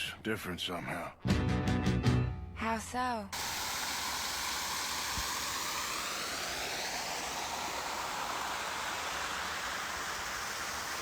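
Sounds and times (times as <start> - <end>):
steady rushing noise: 3.4 - 11.0.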